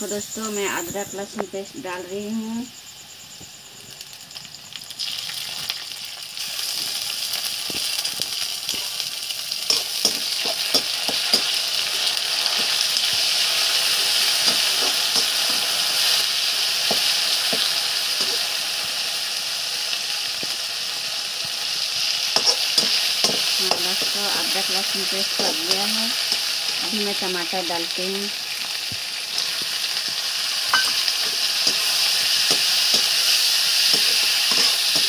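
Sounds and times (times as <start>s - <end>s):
onions sizzling in hot oil: 0.0s - 35.0s
spoon scraping a pan: 9.7s - 12.0s, 14.0s - 16.2s, 22.4s - 24.2s, 30.7s - 35.0s.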